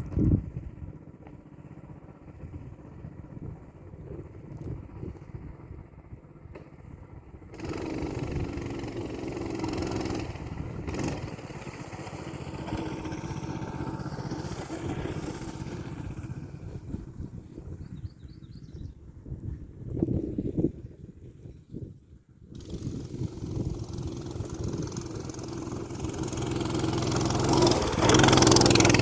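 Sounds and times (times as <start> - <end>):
mini bike engine revving: 7.5 - 17.5, 22.5 - 29.0.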